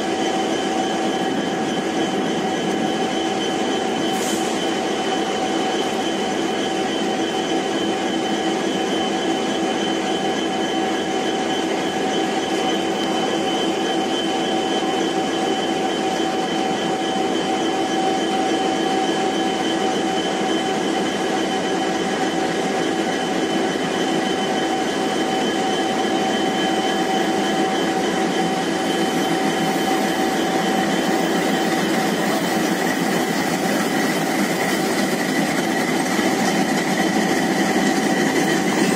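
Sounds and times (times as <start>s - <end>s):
diesel train engine and rail noise: 0.0s - 38.9s.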